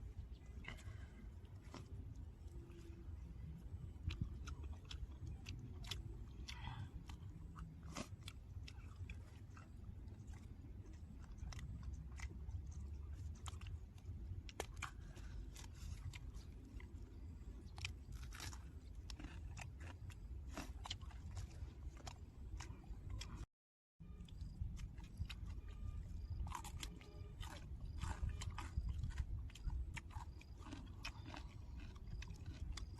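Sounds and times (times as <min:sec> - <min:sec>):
person chewing food: 0:00.0 - 0:23.5, 0:24.1 - 0:32.9
steady low rumble: 0:00.0 - 0:32.9.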